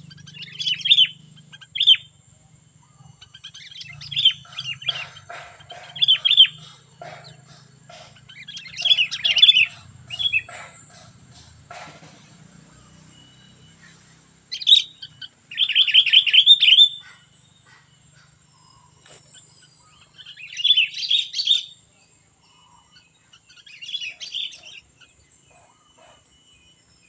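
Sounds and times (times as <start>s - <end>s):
bird chattering song: 0.0s - 27.0s
faint steady high tone: 12.3s - 20.6s, 21.6s - 27.0s.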